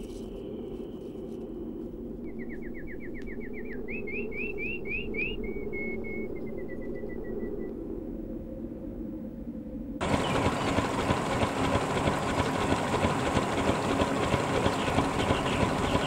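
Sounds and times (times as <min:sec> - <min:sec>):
steady low rumble: 0:00.0 - 0:13.0
songbird singing: 0:02.2 - 0:07.8, 0:10.0 - 0:11.0, 0:14.4 - 0:16.0.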